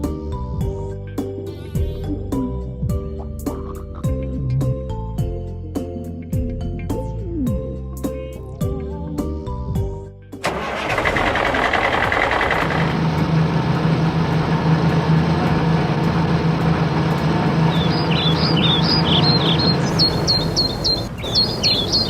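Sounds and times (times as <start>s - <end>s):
vehicle engine starting and running: 10.4s - 22.0s
birds chirping: 17.1s - 22.0s.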